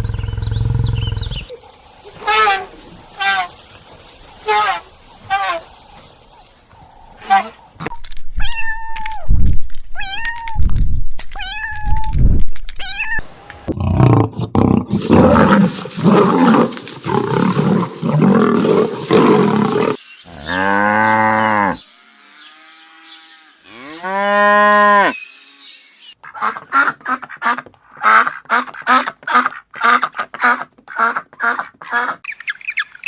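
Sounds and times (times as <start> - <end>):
rough noisy animal calling: 0.0 - 1.5
high bending animal calls: 0.0 - 3.6
low cow-like moos: 20.3 - 25.2.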